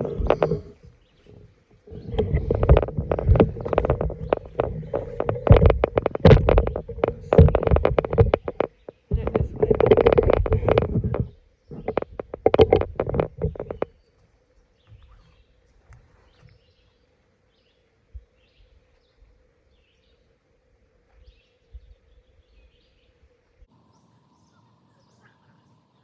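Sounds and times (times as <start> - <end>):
camera rustling and knocking: 0.0 - 14.0
faint bird chirps: 13.8 - 20.3, 21.1 - 26.0.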